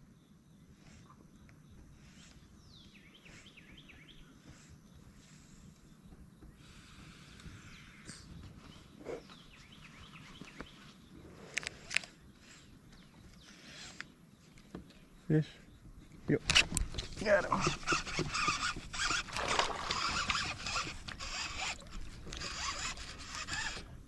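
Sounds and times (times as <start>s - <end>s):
bird chirping: 0.0s - 6.6s.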